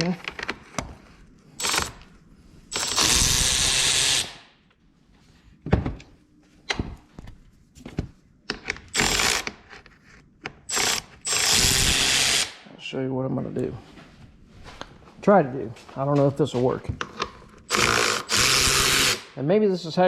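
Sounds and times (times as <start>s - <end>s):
parts clicking and knocking: 7.9s - 11.6s
power driver running: 17.7s - 19.3s.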